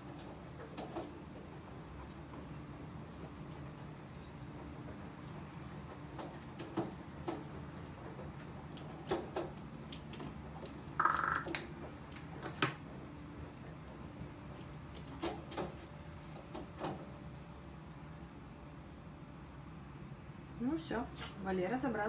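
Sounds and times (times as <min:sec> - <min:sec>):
bird pecking: 0:11.0 - 0:11.6.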